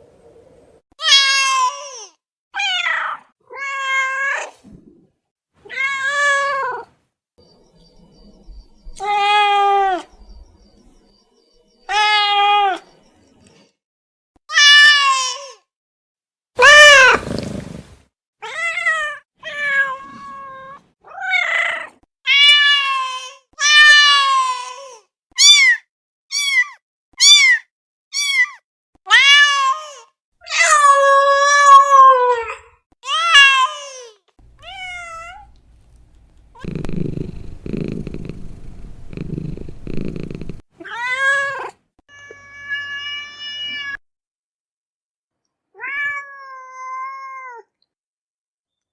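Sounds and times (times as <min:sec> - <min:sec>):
cat meowing: 0:34.6 - 0:35.5, 0:45.8 - 0:47.6
cat purring: 0:35.9 - 0:40.6.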